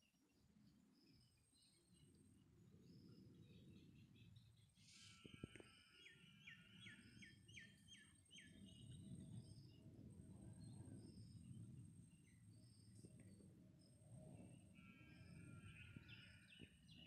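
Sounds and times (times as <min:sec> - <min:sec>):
faint bird chirps: 0:00.1 - 0:09.8.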